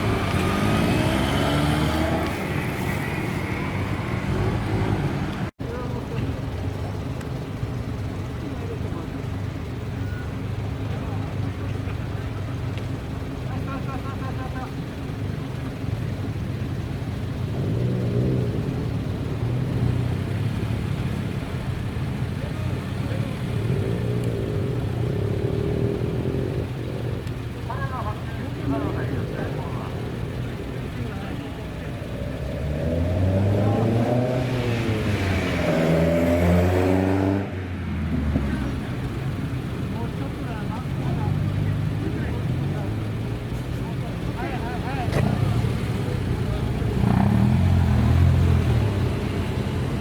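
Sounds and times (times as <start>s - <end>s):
car engine idling: 3.4s - 33.8s, 37.9s - 47.0s.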